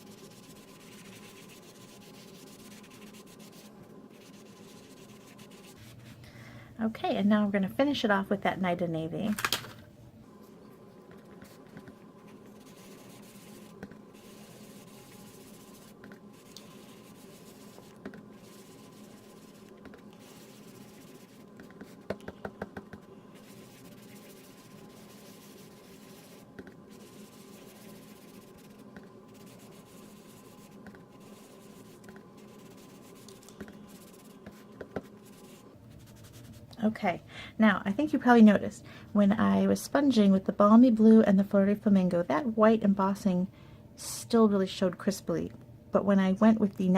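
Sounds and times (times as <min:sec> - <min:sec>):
sponge dabbing on card: 0:00.0 - 0:06.2, 0:11.1 - 0:36.6.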